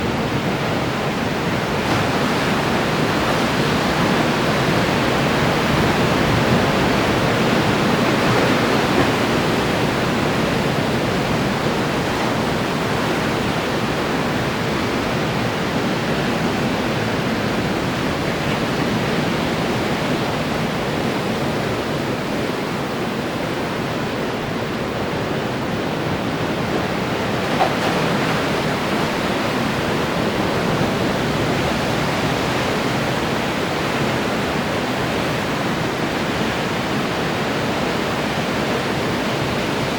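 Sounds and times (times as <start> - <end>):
ocean surf breaking on shore: 0.0 - 39.9.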